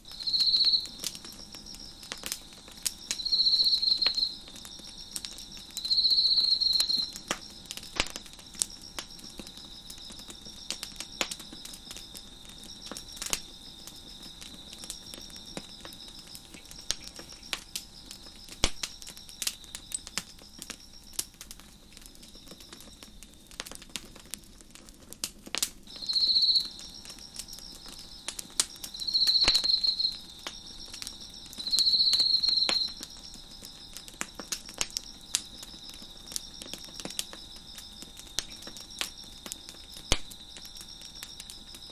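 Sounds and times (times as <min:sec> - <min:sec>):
crickets trilling: 0:00.0 - 0:41.9
faint cricket chirping: 0:00.0 - 0:41.9
fire crackling and popping: 0:00.0 - 0:41.9.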